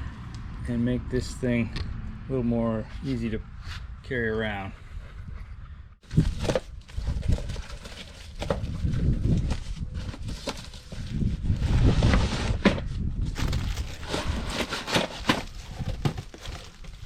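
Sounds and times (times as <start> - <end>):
parts rustling and scraping: 4.9 - 17.0
cardboard box opening: 6.1 - 12.7, 13.4 - 17.0.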